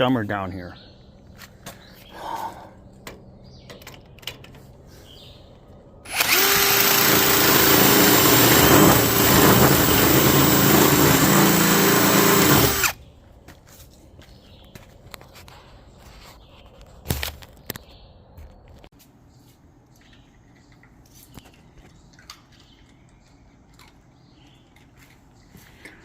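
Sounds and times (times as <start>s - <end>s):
power drill running: 6.1s - 13.0s.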